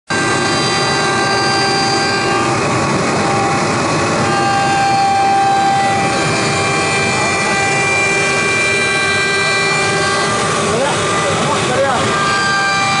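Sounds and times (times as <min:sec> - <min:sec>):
cnc router spindle whine: 0:00.1 - 0:13.0.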